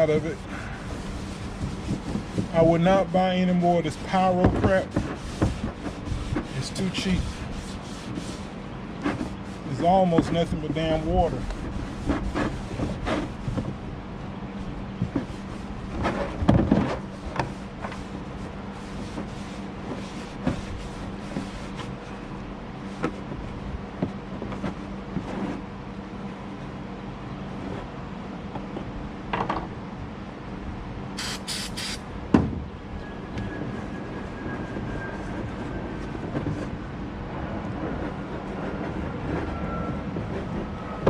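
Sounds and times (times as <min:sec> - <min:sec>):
steady background hum: 0:00.0 - 0:41.0
short sharp hissy sounds: 0:31.2 - 0:32.0.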